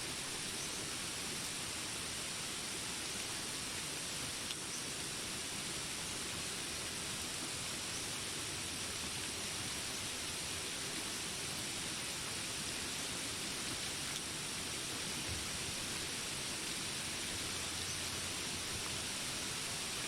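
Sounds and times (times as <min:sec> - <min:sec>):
steady rain hiss: 0:00.0 - 0:20.0
faint tick: 0:04.4 - 0:04.6.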